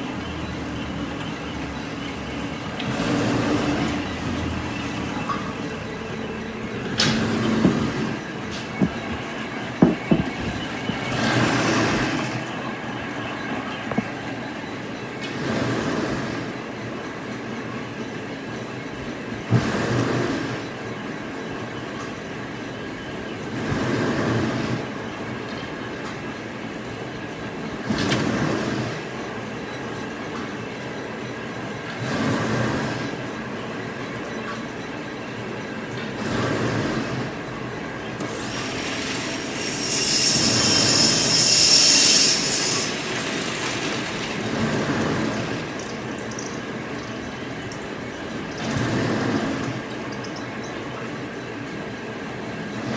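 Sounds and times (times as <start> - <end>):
factory machinery with faint whine: 0.0 - 52.9
machine cycling rush: 38.2 - 49.8.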